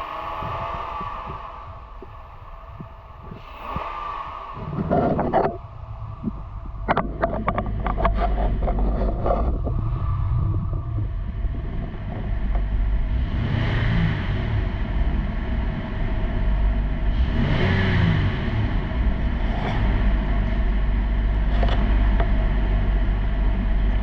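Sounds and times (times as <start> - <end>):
car engine revving: 4.6 - 24.0.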